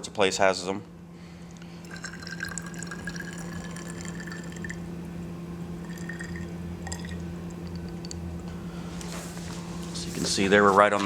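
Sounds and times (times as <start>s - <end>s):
low hum: 0.8s - 10.7s
water trickling into tube: 1.8s - 5.0s, 5.8s - 8.2s.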